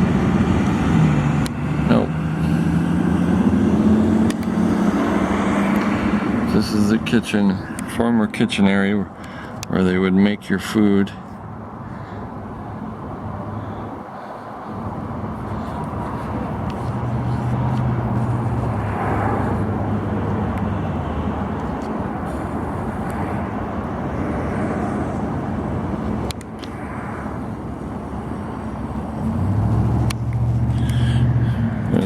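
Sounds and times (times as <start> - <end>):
low engine hum: 0.0 - 32.0
road traffic passing: 0.0 - 32.0.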